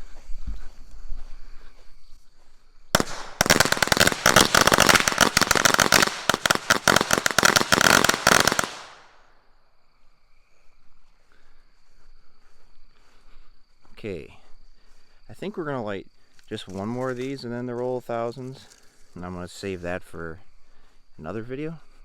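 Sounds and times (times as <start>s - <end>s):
firecrackers banging: 3.0s - 9.1s.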